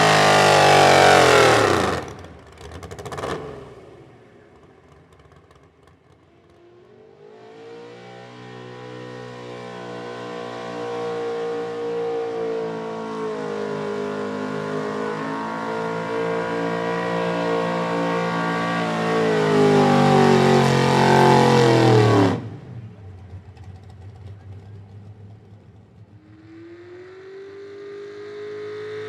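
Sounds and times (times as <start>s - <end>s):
truck engine running hard: 0.0s - 3.4s.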